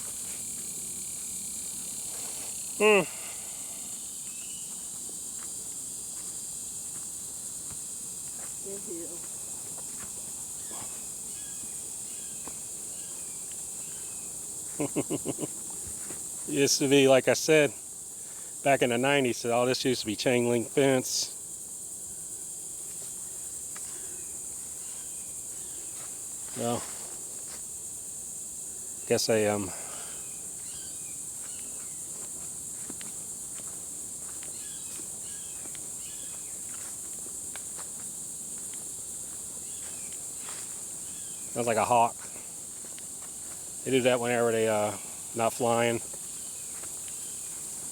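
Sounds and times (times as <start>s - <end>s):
footsteps crunching on trail: 0.0s - 2.7s, 3.9s - 16.5s, 22.6s - 27.8s, 30.5s - 47.9s
high-pitched insect chorus: 0.0s - 47.9s.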